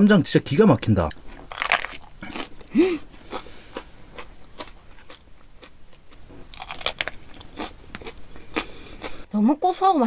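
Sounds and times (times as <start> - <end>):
crunching chili pepper: 1.4 - 2.6, 6.4 - 8.7.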